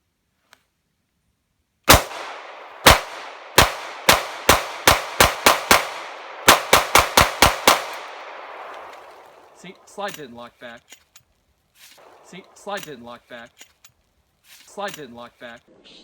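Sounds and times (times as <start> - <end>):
pistol shots echoing: 1.9 - 9.9.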